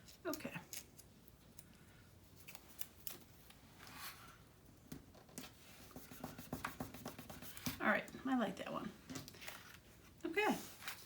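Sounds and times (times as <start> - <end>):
paper rustle: 9.3 - 11.0.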